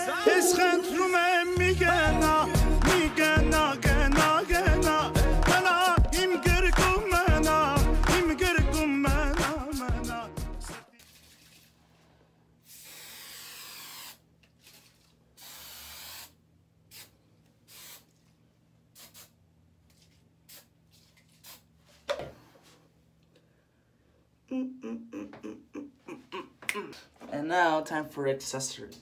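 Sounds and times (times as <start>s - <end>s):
aerosol can spraying: 12.6s - 18.2s, 18.9s - 19.4s, 20.5s - 21.7s.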